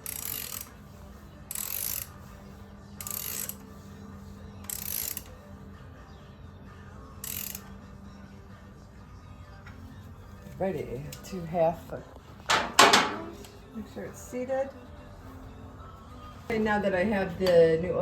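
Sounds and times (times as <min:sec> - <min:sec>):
ratchet wrench clicking: 0:00.0 - 0:00.8, 0:01.5 - 0:02.2, 0:03.0 - 0:03.6, 0:04.6 - 0:05.4, 0:07.2 - 0:07.8.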